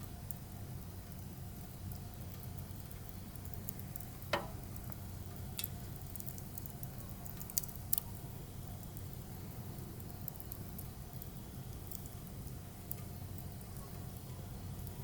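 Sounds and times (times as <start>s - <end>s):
firewood crackling: 0.0s - 15.0s
sharp pops of fire: 1.9s - 8.2s.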